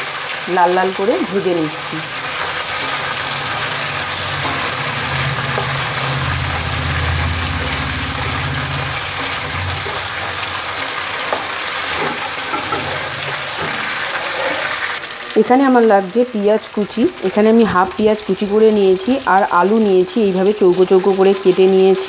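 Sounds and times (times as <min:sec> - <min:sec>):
vegetables sizzling in hot oil: 0:00.0 - 0:22.0
metal spatula scraping: 0:01.8 - 0:15.0
low engine-like hum: 0:03.2 - 0:10.7.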